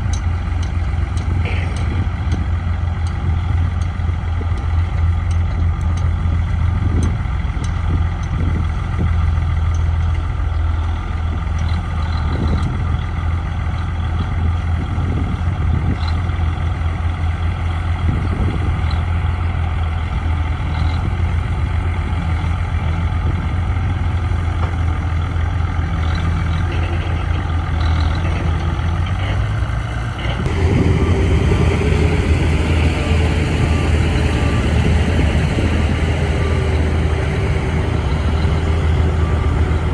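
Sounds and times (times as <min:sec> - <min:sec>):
heavy diesel engine humming: 0:00.0 - 0:39.9
machinery clanks: 0:30.2 - 0:39.9.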